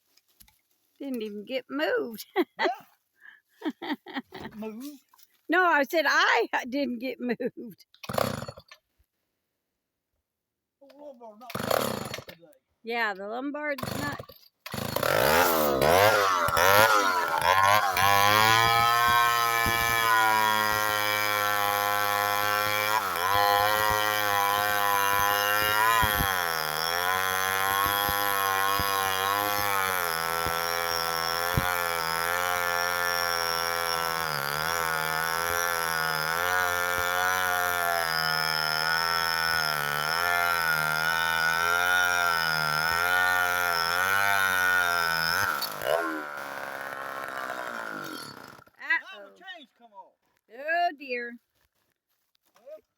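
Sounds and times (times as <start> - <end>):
chainsaw cutting under load: 8.0 - 8.8, 11.4 - 12.4, 13.8 - 48.9.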